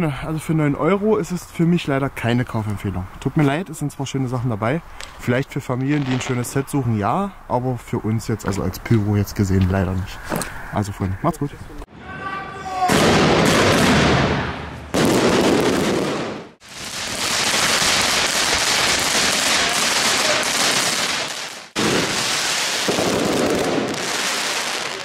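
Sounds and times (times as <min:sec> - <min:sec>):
fireworks crackling and banging: 0:05.0 - 0:06.6, 0:12.9 - 0:25.0.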